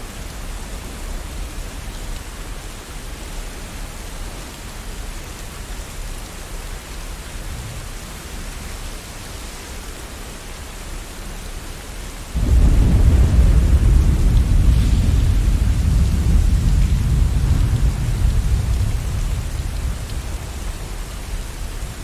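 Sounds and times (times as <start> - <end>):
rain falling: 0.0 - 22.0
thunder rumble: 12.4 - 22.0.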